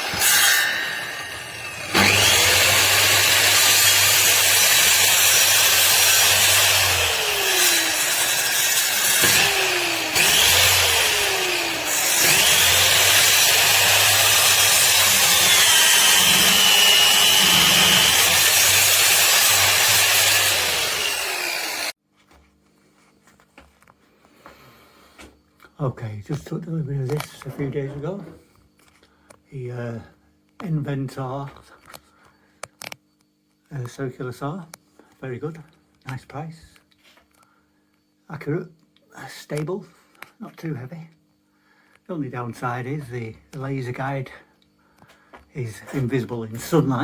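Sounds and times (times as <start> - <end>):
circular saw cutting wood: 0.0 - 22.0.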